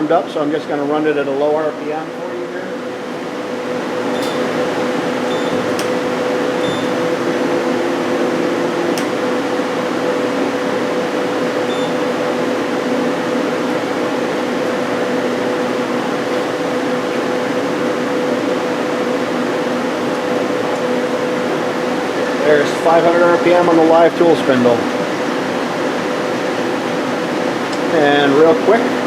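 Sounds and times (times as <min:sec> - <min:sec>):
lathe running with whine: 0:00.0 - 0:29.0.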